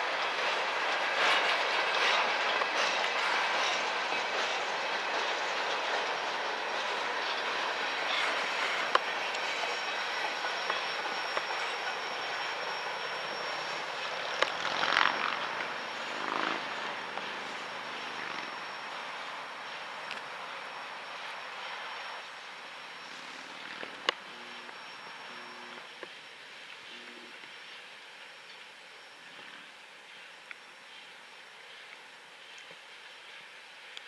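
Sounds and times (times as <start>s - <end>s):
freight train wheels rumbling: 0.0s - 34.0s
high wheel squeal: 1.2s - 25.9s.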